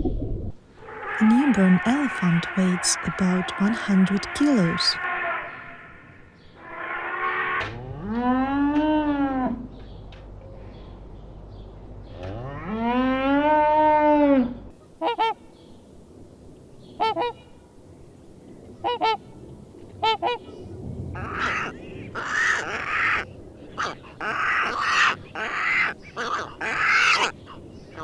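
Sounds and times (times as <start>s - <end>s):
flock of geese honking: 15.0s - 15.4s, 16.9s - 17.4s, 18.8s - 19.2s, 20.0s - 20.6s, 21.2s - 28.0s.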